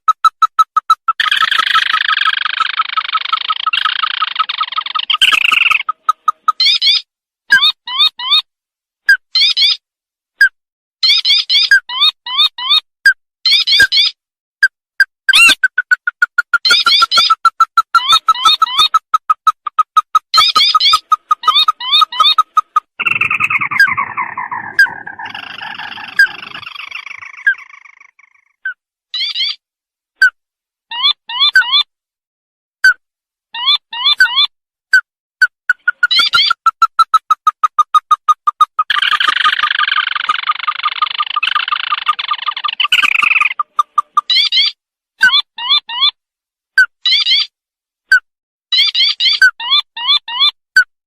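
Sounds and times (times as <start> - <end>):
bird call with chattering trill: 0.1 - 8.5, 15.3 - 29.6, 35.7 - 46.2
short clipped bird notes: 0.2 - 7.8
short rising bird notes: 20.4 - 28.4.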